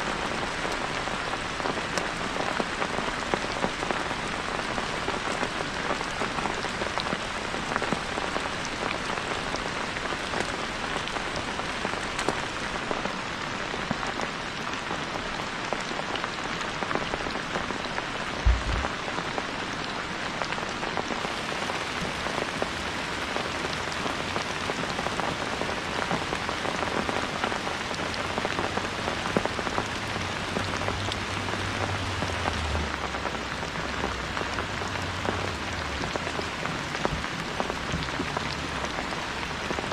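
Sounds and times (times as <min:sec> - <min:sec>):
steady rain falling: 0:00.0 - 0:39.9
low thump: 0:18.4 - 0:18.9
low rumble: 0:18.4 - 0:19.0.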